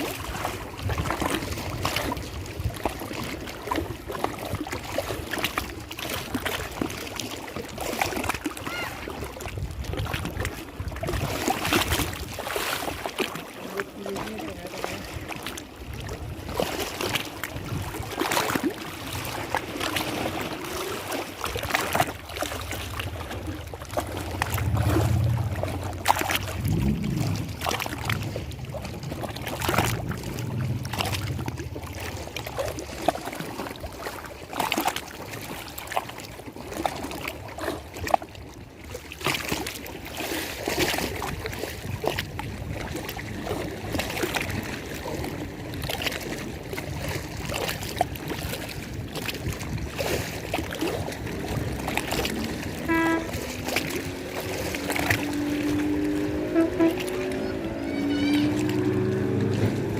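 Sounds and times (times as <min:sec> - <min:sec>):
water sloshing and splashing: 0:00.0 - 0:59.9
low hum: 0:23.2 - 0:32.4.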